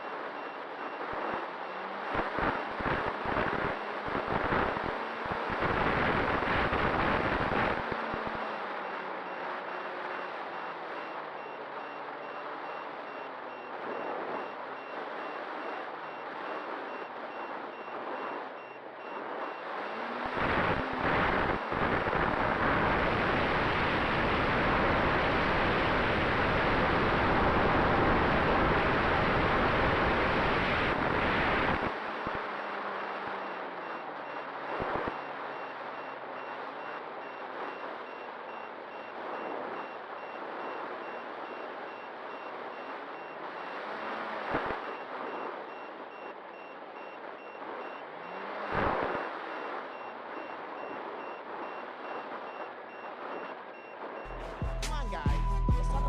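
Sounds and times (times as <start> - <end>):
quick high electronic beeps: 54.3 - 56.0.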